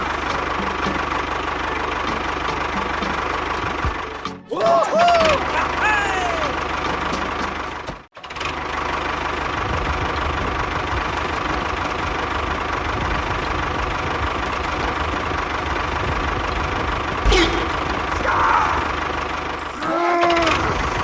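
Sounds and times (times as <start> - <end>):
small engine running: 0.0 - 4.4, 5.1 - 21.0
sudden thump: 17.2 - 18.0.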